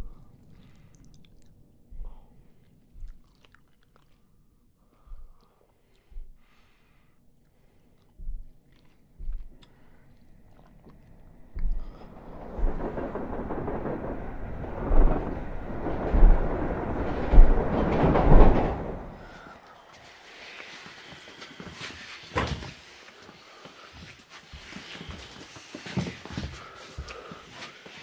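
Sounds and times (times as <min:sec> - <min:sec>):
train rolling rumble: 0:11.2 - 0:28.0
train wheels thumping over rail joints: 0:11.8 - 0:19.5.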